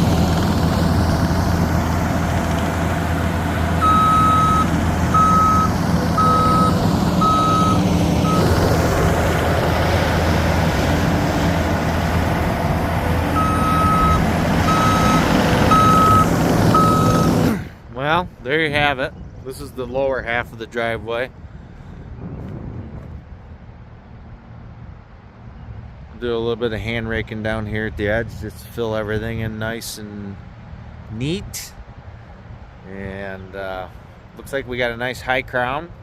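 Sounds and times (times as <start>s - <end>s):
diesel engine running: 0.0s - 18.4s
backup alarm beeping: 3.8s - 8.6s, 13.3s - 17.4s.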